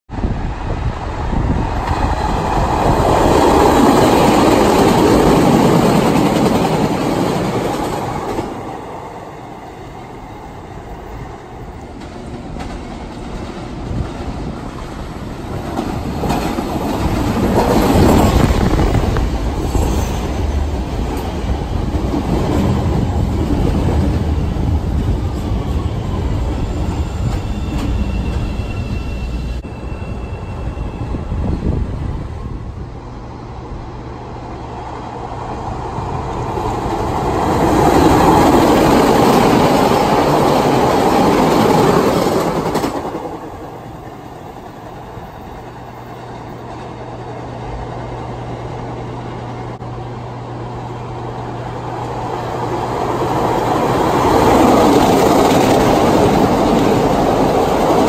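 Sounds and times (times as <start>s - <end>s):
train wheels clattering over rails: 11.9s - 25.8s, 36.5s - 45.0s.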